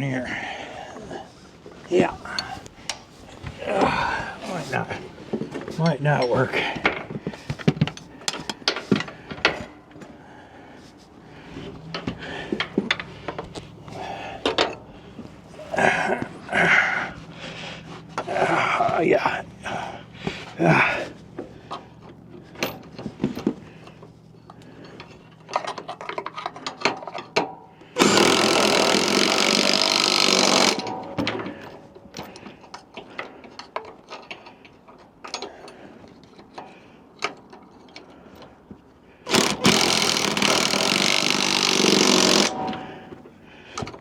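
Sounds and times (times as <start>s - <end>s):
tools clicking and knocking: 5.5s - 10.1s, 11.9s - 13.6s, 14.4s - 14.8s, 21.7s - 38.6s, 39.3s - 44.0s
power tool running: 28.0s - 31.0s, 39.3s - 42.8s.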